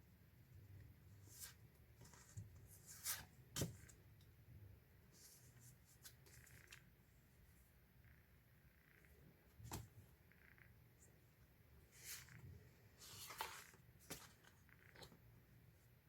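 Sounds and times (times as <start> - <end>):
soft paper rustles: 1.2 - 4.0, 11.9 - 15.2.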